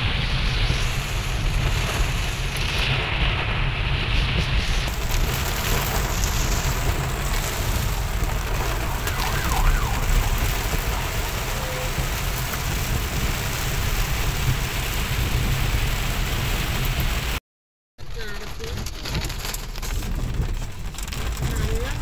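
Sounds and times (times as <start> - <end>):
heavy rain on car roof: 0.0 - 17.4, 18.0 - 22.0
low rumble of moving car: 0.0 - 17.4, 18.0 - 22.0
faint wavering wail: 9.0 - 10.9.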